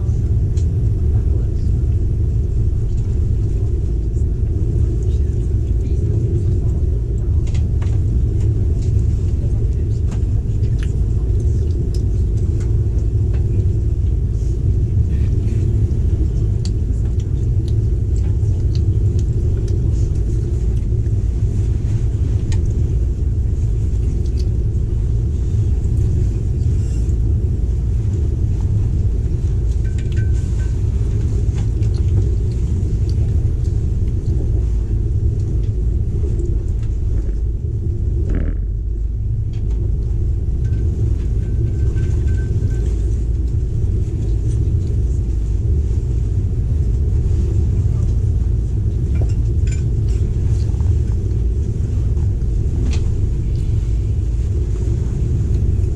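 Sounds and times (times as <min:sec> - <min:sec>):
train rumble inside carriage: 0:00.0 - 0:55.9
faint clicks and rattles: 0:28.0 - 0:48.4.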